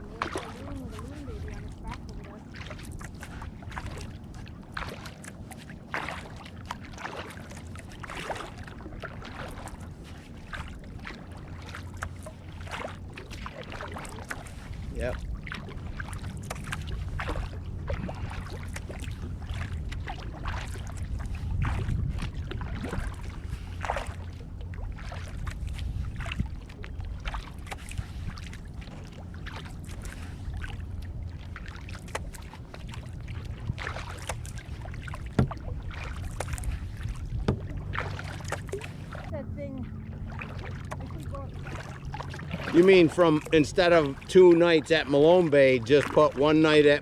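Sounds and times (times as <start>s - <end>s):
paddle splashes and drips: 0.0s - 47.0s
low rumble: 14.8s - 44.3s.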